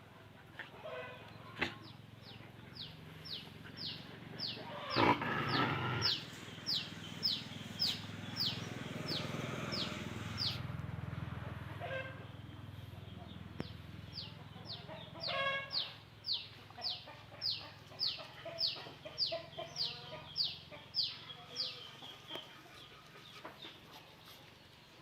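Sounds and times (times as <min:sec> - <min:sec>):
chick peeping: 0:13.0 - 0:24.3.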